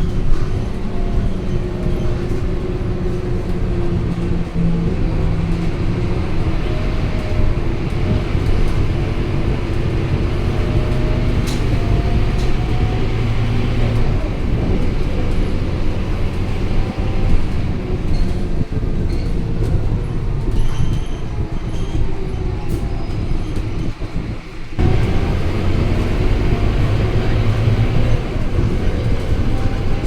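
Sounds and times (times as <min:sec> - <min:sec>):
bus diesel engine droning: 0:00.0 - 0:30.0.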